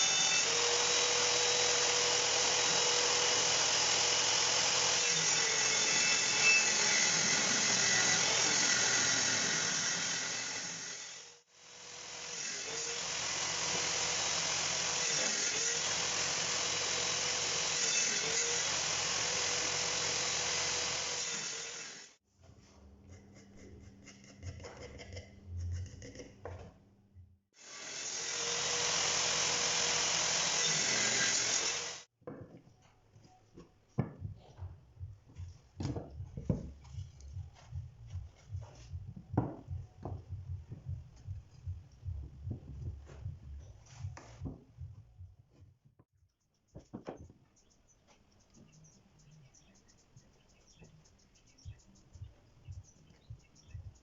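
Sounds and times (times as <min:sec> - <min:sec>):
power tool cutting wood: 0:00.0 - 0:22.2, 0:27.6 - 0:32.1.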